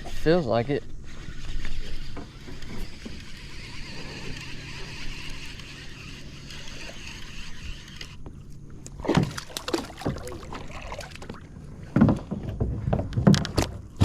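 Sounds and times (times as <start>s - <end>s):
steady outdoor hiss: 0.0s - 14.0s
water sloshing: 2.0s - 14.0s
knocks and thumps on a kayak: 9.0s - 14.0s.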